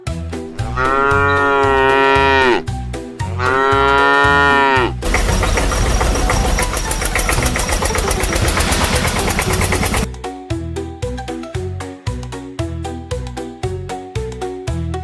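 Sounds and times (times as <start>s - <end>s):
cow mooing: 0.5s - 5.0s
dense rattling ticks: 5.0s - 10.1s.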